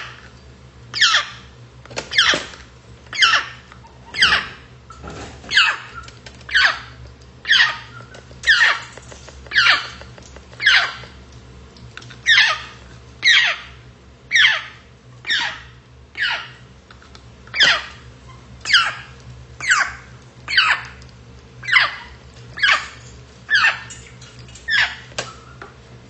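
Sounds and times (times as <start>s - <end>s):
parrot squealing calls: 1.0s - 1.4s, 2.1s - 2.5s, 3.1s - 4.7s, 5.5s - 8.9s, 9.5s - 10.0s, 10.6s - 11.1s, 12.2s - 16.6s, 17.5s - 21.0s, 21.6s - 25.6s.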